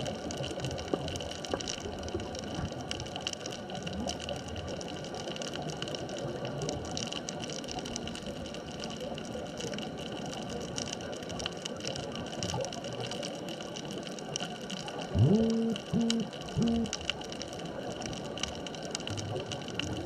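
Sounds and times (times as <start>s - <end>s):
crackle of clicks: 0.0s - 20.0s
underwater water noise: 0.0s - 20.0s
faint high hum: 15.2s - 17.0s.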